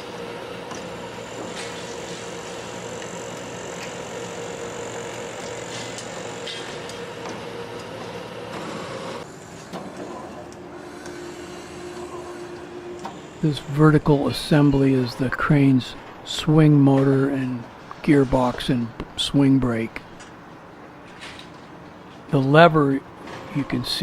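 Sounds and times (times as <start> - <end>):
crane motor hum with whine: 0.0 - 19.2.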